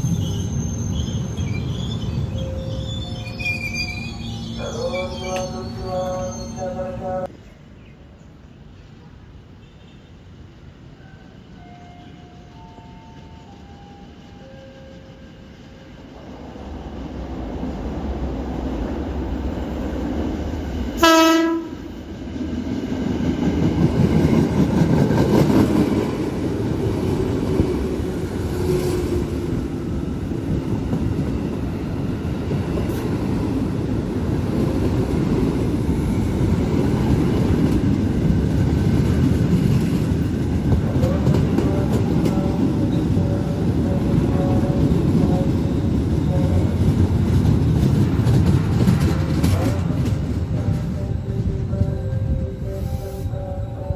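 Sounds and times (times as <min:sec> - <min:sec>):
train rumbling past on rails: 0:00.0 - 0:53.9
train horn blast: 0:04.6 - 0:07.3, 0:21.0 - 0:22.0, 0:41.0 - 0:46.8.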